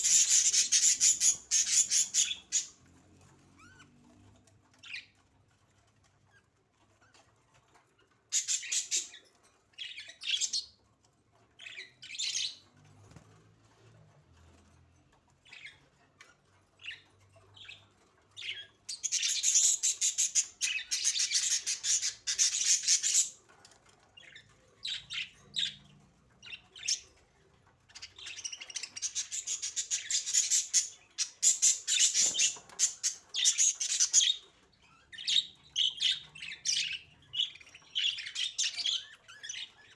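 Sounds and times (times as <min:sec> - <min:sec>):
budgerigars chirping: 0:00.0 - 0:02.8, 0:08.3 - 0:09.2, 0:11.6 - 0:12.6, 0:18.4 - 0:23.4, 0:24.2 - 0:27.1, 0:27.9 - 0:39.9.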